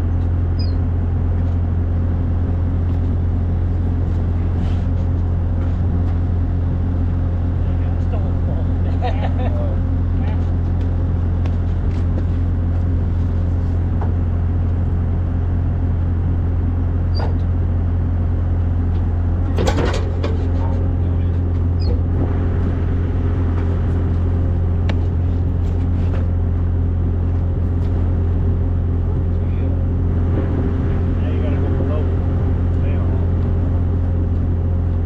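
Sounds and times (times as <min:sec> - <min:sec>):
vehicle engine running: 0:00.0 - 0:35.0.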